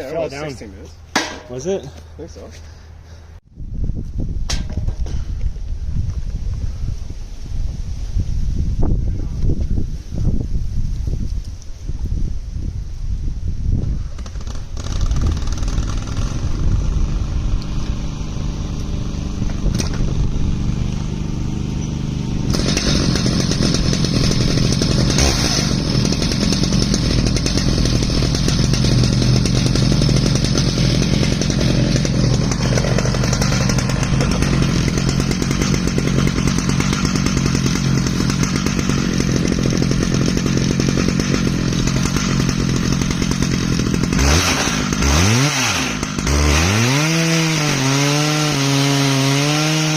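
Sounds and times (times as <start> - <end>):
chainsaw cutting log: 14.2 - 49.9.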